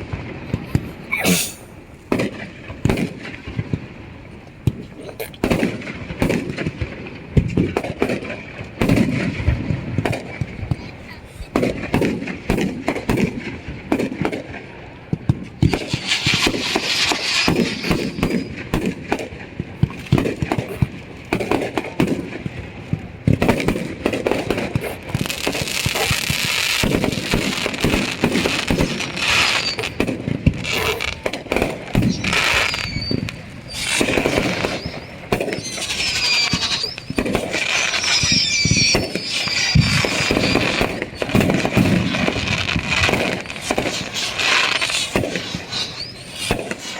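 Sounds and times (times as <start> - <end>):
fireworks whistling: 0.0 - 3.6, 15.4 - 46.9
firecrackers popping and crackling: 0.0 - 46.9.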